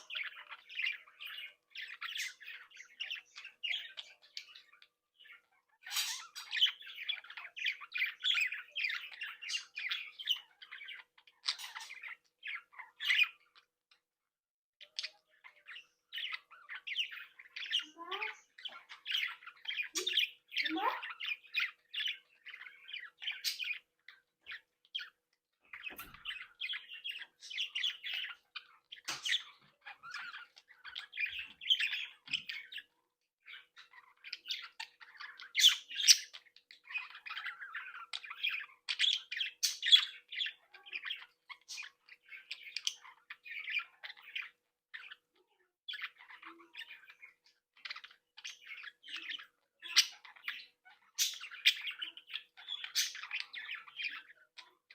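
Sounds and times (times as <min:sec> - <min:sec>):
budgerigars chattering and chirping: 0:00.0 - 0:14.1, 0:14.8 - 0:54.9.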